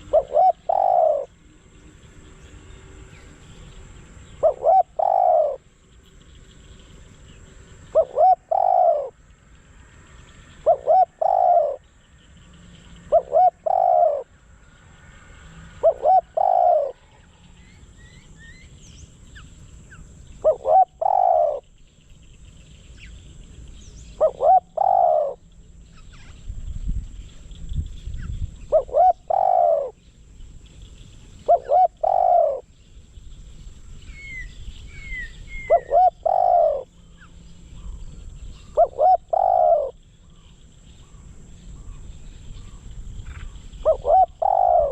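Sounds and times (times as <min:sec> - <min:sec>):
dove cooing: 0:00.0 - 0:01.4, 0:04.0 - 0:05.7, 0:07.4 - 0:09.2, 0:10.5 - 0:11.9, 0:13.0 - 0:14.3, 0:15.7 - 0:17.3, 0:20.4 - 0:21.7, 0:24.1 - 0:26.2, 0:28.6 - 0:30.0, 0:31.3 - 0:32.7, 0:34.1 - 0:40.1, 0:41.8 - 0:44.9
small birds chirping faintly: 0:00.0 - 0:44.9.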